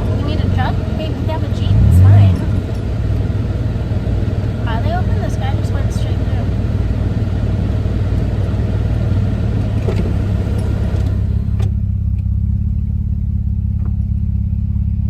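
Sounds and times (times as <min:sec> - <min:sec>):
road noise rushing: 0:00.0 - 0:11.7
car engine hum: 0:00.0 - 0:15.0.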